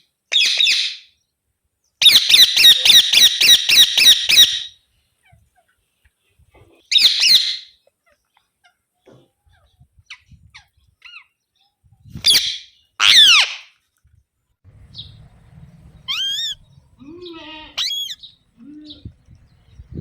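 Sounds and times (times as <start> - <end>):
parakeet chirps: 2.0 - 4.7, 16.0 - 16.8, 17.8 - 18.4
parakeet screeching: 12.3 - 13.7, 16.1 - 18.3.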